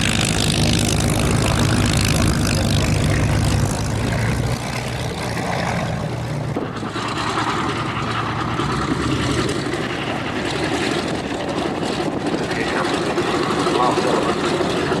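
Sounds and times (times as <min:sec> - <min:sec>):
propeller aircraft engine drone: 0:00.0 - 0:15.0.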